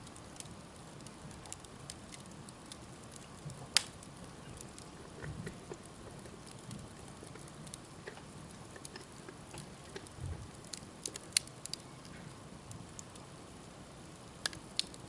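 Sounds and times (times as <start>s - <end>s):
campfire hissing and crackling: 0.0s - 15.0s
campfire sharp pops: 3.4s - 8.2s, 14.4s - 15.0s.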